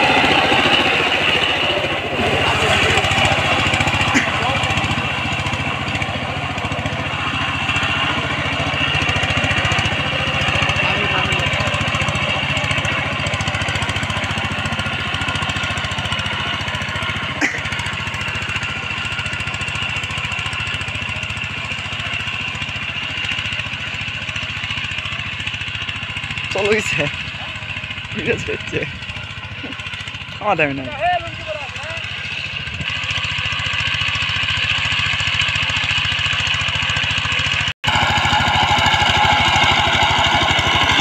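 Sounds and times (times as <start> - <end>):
tiller engine running: 0.0 - 41.0.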